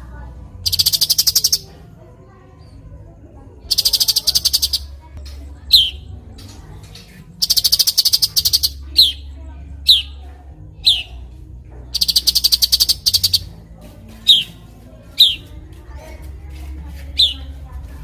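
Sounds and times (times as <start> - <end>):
songbird chattering trills: 0.6 - 1.8, 3.6 - 10.2, 10.8 - 11.3, 11.9 - 15.5, 17.1 - 17.6.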